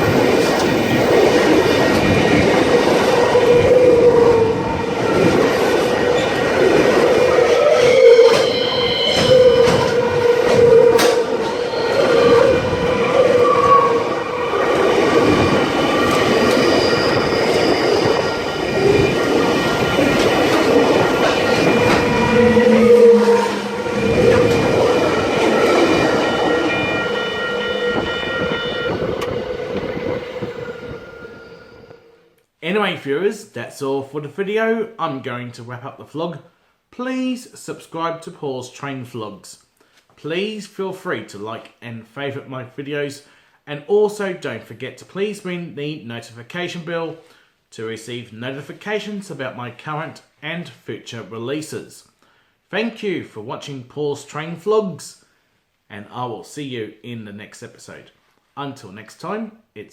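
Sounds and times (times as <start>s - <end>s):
train passing at high speed: 0.0s - 32.3s.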